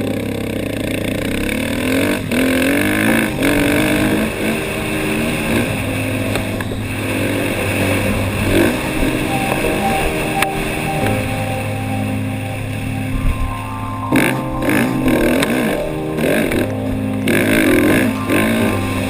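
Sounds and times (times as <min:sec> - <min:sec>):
motocross bike engine revving: 0:00.0 - 0:09.3, 0:14.1 - 0:18.8.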